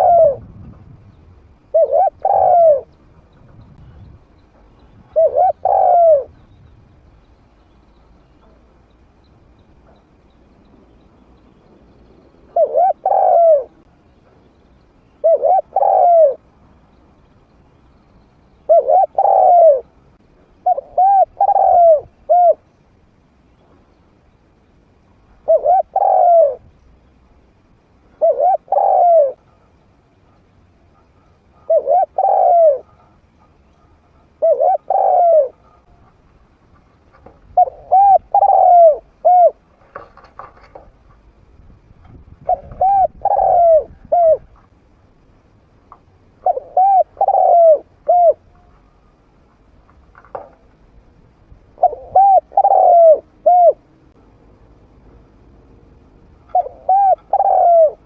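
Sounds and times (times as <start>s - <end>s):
dove cooing: 0.0s - 0.6s, 1.7s - 3.0s, 4.6s - 6.6s, 12.4s - 13.9s, 15.2s - 16.4s, 18.6s - 20.0s, 20.6s - 22.7s, 25.4s - 26.7s, 28.1s - 36.2s, 36.8s - 40.9s, 42.4s - 44.7s, 46.4s - 48.7s, 51.8s - 53.9s, 56.4s - 58.0s.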